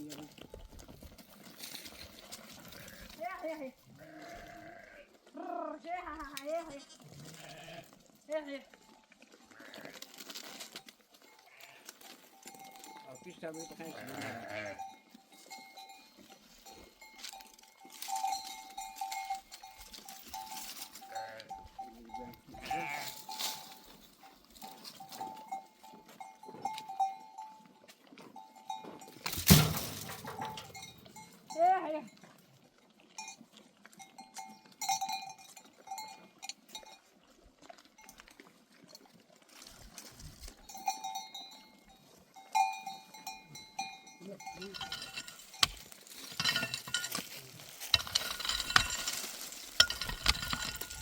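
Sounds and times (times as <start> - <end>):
sheep and goat bells clinking: 0.0 - 51.0
sheep bleating: 2.6 - 6.0, 6.7 - 8.1, 9.4 - 10.1, 11.4 - 12.0, 13.7 - 14.9, 20.9 - 23.3.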